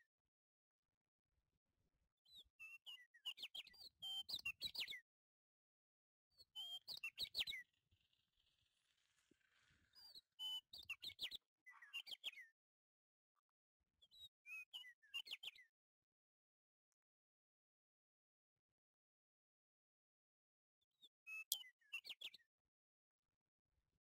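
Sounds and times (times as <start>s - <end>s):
bird chirping: 9.9s - 12.5s.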